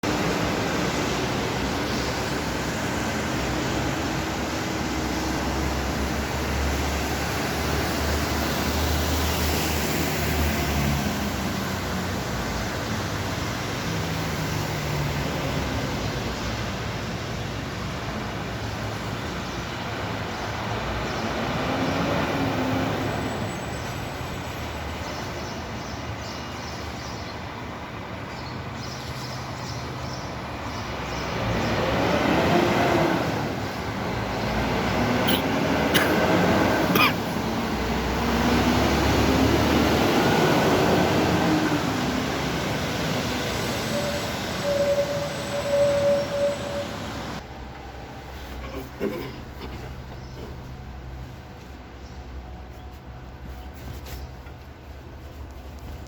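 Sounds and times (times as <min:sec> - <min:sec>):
vehicle engines humming: 0:30.9 - 0:56.0.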